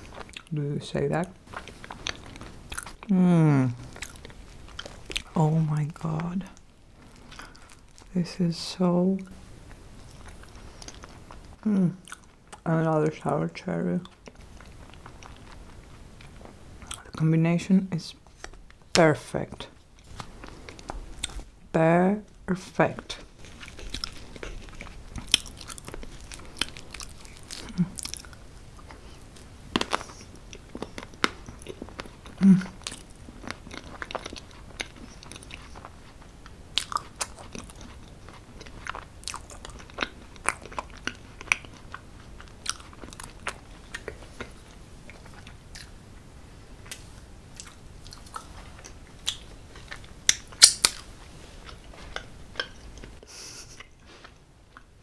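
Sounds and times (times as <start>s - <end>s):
person chewing: 0.0s - 0.5s, 1.2s - 8.2s, 9.2s - 12.7s, 14.0s - 17.2s, 19.7s - 21.6s, 23.0s - 46.0s, 46.8s - 55.0s
wet mouth clicks and smacks: 50.3s - 51.0s.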